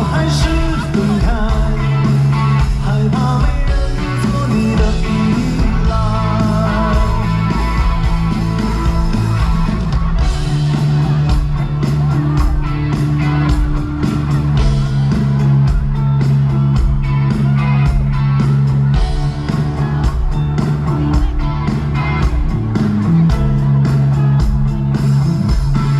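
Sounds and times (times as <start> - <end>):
guitar: 0.0 - 25.9
steady drum beat: 0.0 - 25.9
sustained bass notes: 0.0 - 25.9.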